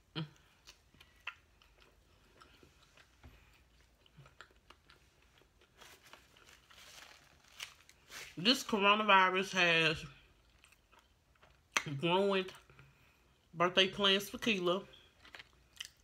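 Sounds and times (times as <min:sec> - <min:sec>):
person chewing a sandwich: 0:00.0 - 0:08.3, 0:10.2 - 0:11.8, 0:15.0 - 0:16.0.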